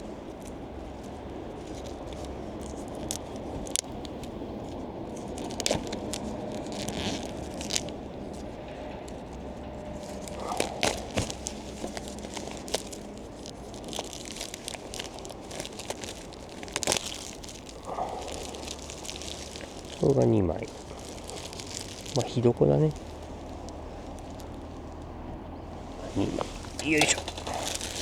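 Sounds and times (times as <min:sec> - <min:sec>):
packaging crinkling and tearing: 0:00.0 - 0:28.0
parts clicking and knocking: 0:26.6 - 0:28.0.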